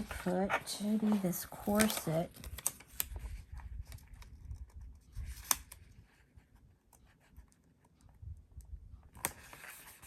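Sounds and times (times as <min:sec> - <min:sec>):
paper rustling: 0:00.0 - 0:06.5.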